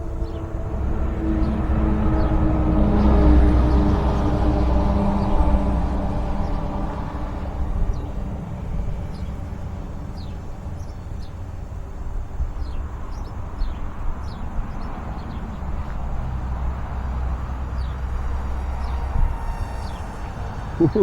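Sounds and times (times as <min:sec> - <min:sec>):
small birds chirping: 0:12.6 - 0:15.9, 0:16.9 - 0:21.0.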